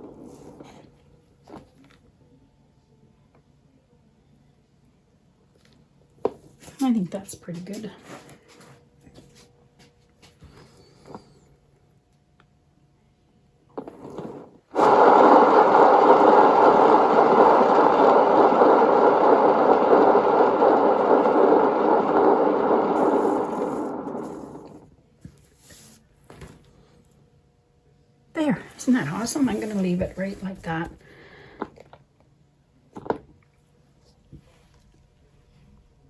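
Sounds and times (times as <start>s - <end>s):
hairdryer whooshing hum: 14.8s - 24.9s.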